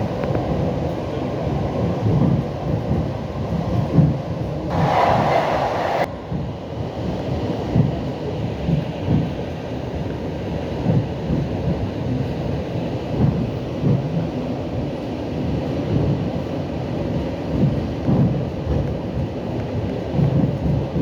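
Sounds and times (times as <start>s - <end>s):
train wheels rumbling on rails: 0.0s - 21.0s
low thuds and knocks: 1.9s - 4.3s.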